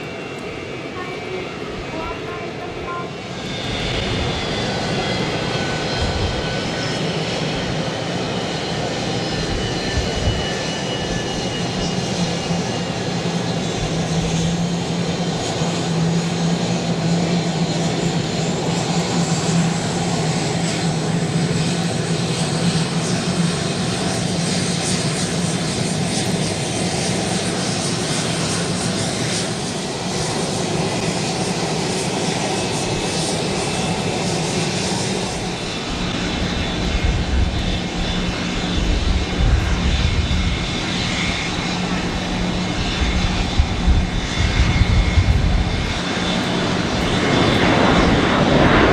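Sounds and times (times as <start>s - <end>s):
jet engines running: 0.0s - 48.9s
deep engine rumble: 31.7s - 48.9s.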